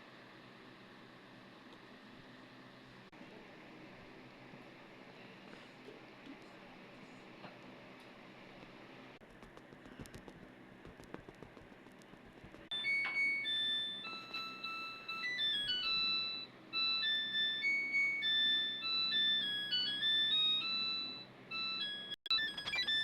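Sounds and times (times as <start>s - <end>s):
washing machine chime melody: 12.7s - 23.0s.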